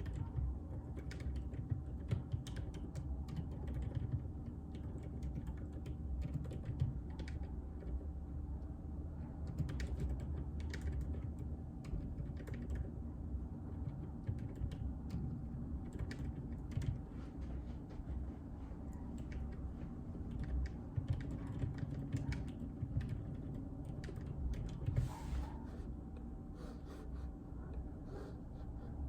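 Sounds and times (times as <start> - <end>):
typing on a keyboard: 0.0 - 8.2, 9.4 - 13.1, 13.7 - 17.1, 19.1 - 25.1
low steady hum: 0.0 - 29.0.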